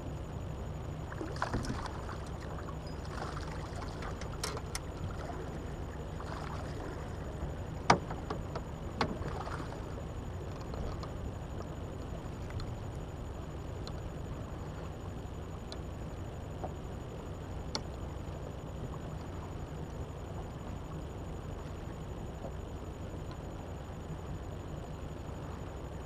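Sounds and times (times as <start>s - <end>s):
water lapping at boat: 0.0s - 26.0s
sharp knocks on boat: 7.8s - 9.8s.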